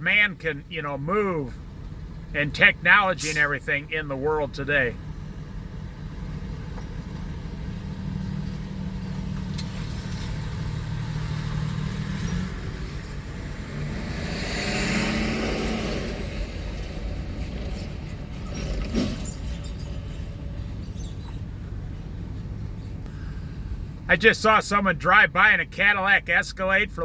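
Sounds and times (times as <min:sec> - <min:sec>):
low engine rumble: 0:00.0 - 0:14.4, 0:15.6 - 0:27.0
vehicle driving past: 0:05.0 - 0:21.4.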